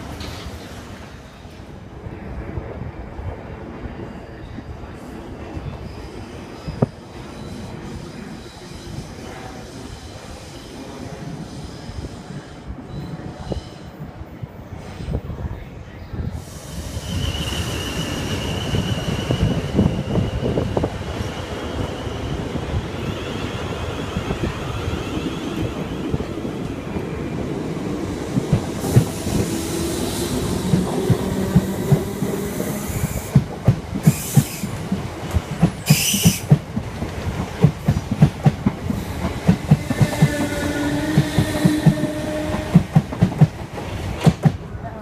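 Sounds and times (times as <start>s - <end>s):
electric train passing: 16.3s - 45.0s.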